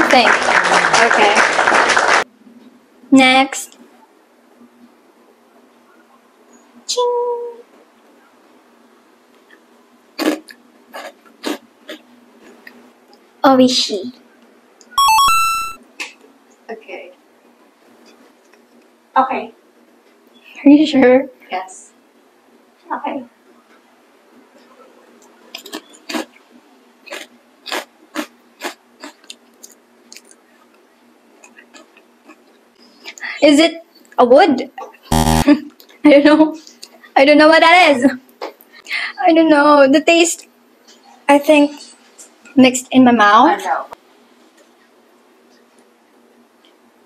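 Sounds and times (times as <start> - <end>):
mouth chewing crunchy snack: 10.2 - 12.8, 25.5 - 26.4, 27.0 - 30.8, 31.4 - 33.2
chip crunching between teeth: 25.5 - 26.4, 27.0 - 30.4.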